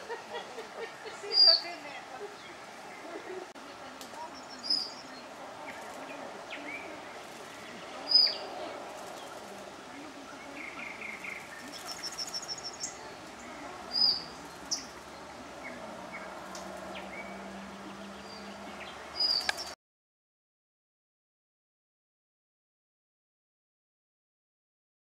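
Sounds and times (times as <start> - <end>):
outdoor background noise: 0.0 - 19.8
songbirds chirping: 0.0 - 19.8.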